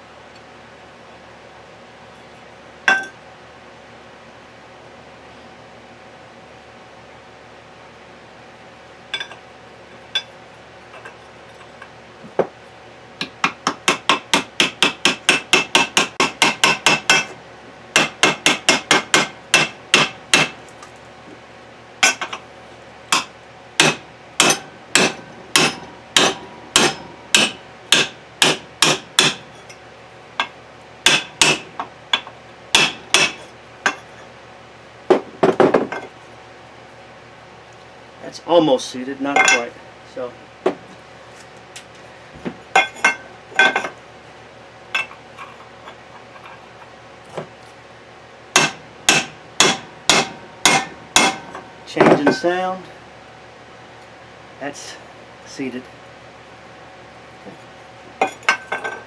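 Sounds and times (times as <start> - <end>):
hammer tapping metal: 2.9 - 3.2, 13.2 - 17.4, 18.0 - 20.6, 23.1 - 29.7, 31.1 - 34.0, 48.6 - 52.6.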